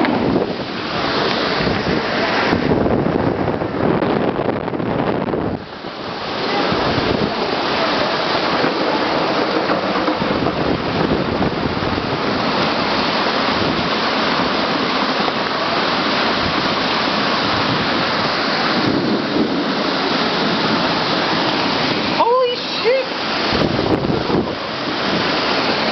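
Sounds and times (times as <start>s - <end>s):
strong wind: 0.0s - 25.9s
torrential rain: 0.0s - 25.9s.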